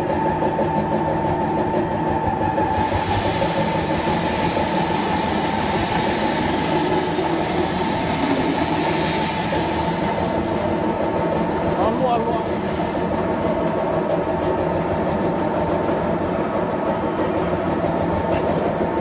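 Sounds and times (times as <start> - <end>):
machine humming and whining: 0.0 - 19.0
loud hiss: 2.7 - 13.1.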